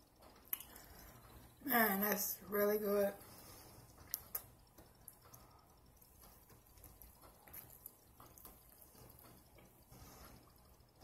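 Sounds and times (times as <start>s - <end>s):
low room hum: 0.0s - 11.0s
person chewing food: 0.1s - 1.5s, 3.2s - 11.0s
lip-smacking clicks: 0.2s - 0.9s, 3.9s - 5.4s.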